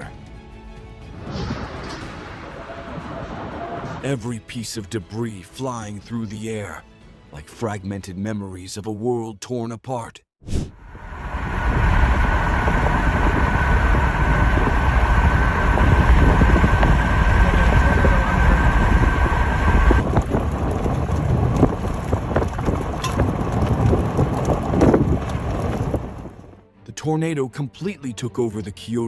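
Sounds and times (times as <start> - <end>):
storm wind on microphone: 1.1 - 4.0, 10.5 - 26.6
rain: 1.2 - 4.0, 10.8 - 26.6
faint steady whine: 10.8 - 20.0.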